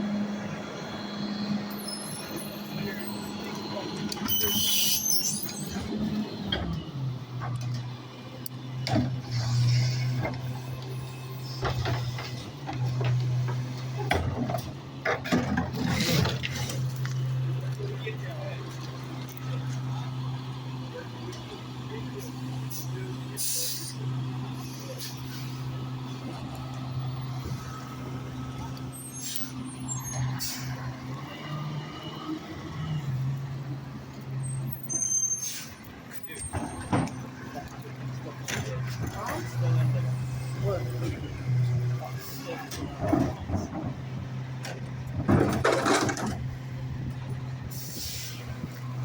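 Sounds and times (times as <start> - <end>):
garbage truck engine humming: 0.0 - 49.0
garbage truck engine running: 32.0 - 49.0
knocks and rattles: 42.8 - 46.5.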